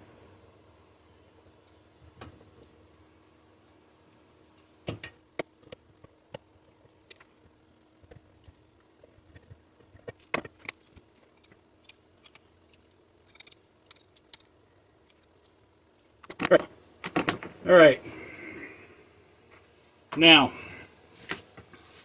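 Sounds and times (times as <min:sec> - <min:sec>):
small metallic clicks and clinks: 0:09.9 - 0:17.4.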